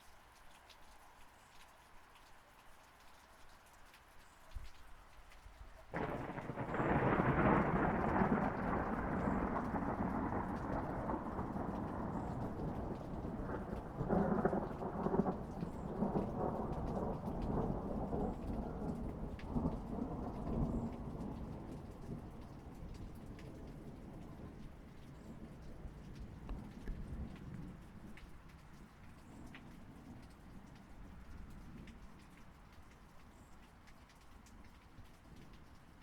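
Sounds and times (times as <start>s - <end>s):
steady rain: 0.0s - 36.0s
thunder rumbling: 5.9s - 28.1s.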